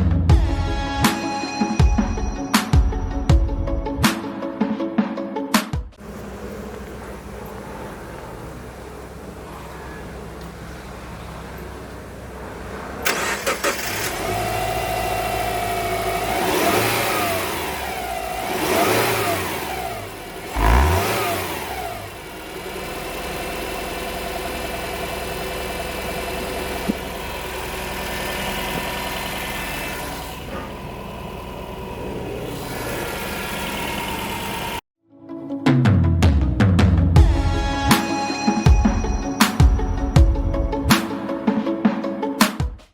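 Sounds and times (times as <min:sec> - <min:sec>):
car engine starting and revving: 0:06.0 - 0:34.8.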